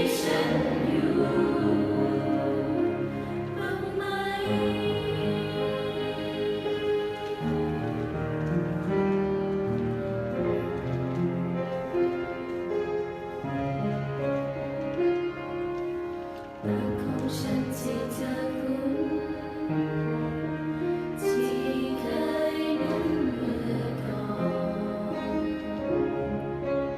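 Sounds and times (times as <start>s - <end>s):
vocal group singing in harmony: 0.0s - 7.7s, 16.7s - 19.8s, 21.2s - 25.9s.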